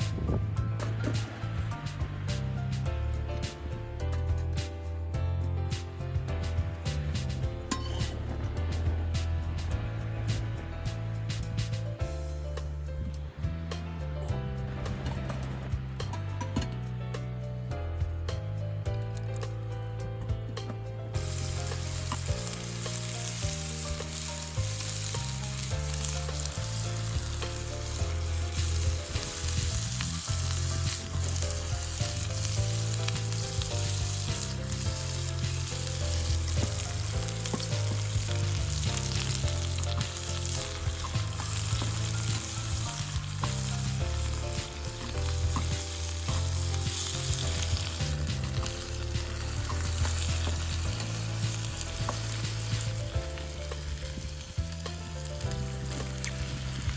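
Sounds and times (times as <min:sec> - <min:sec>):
background music with bass: 0:00.0 - 0:56.9
food sizzling in a pan: 0:06.8 - 0:10.6, 0:21.2 - 0:56.9.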